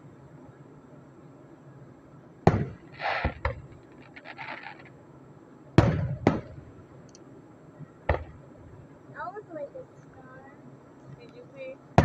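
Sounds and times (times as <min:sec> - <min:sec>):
fireworks bangs: 0:02.4 - 0:05.0, 0:05.8 - 0:06.9, 0:08.0 - 0:08.8
fireworks crackling: 0:02.5 - 0:05.0.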